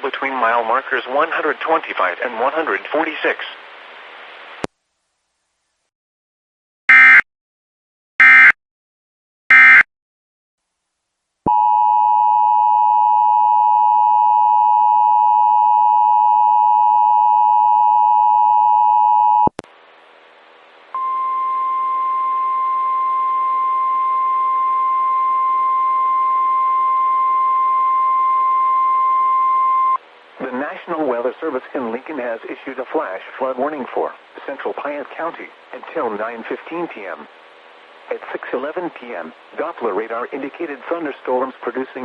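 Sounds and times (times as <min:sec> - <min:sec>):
radio static hiss: 0:00.0 - 0:04.7, 0:30.2 - 0:42.0
steady warning alarm tone: 0:06.9 - 0:07.2, 0:08.2 - 0:08.6, 0:09.5 - 0:09.8, 0:21.0 - 0:30.0
two-tone attention signal: 0:09.5 - 0:09.8, 0:21.0 - 0:30.0.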